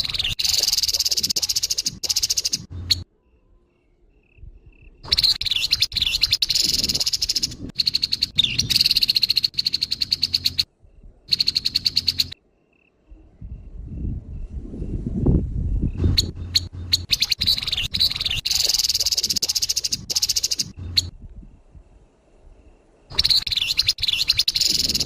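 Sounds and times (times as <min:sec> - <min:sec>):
bird harsh rattling calls: 0:00.0 - 0:03.0, 0:05.1 - 0:10.7, 0:11.3 - 0:12.4, 0:16.0 - 0:21.1, 0:23.1 - 0:25.0.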